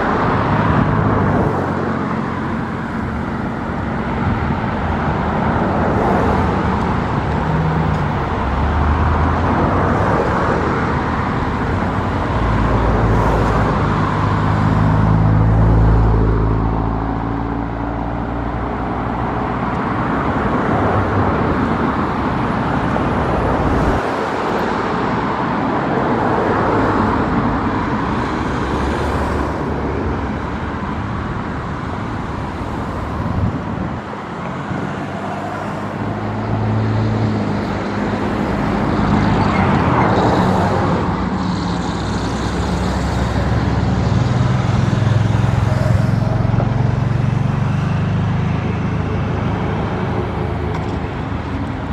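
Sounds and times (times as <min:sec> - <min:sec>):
deep engine rumble passing: 0:00.0 - 0:24.8
road traffic passing: 0:00.0 - 0:51.9.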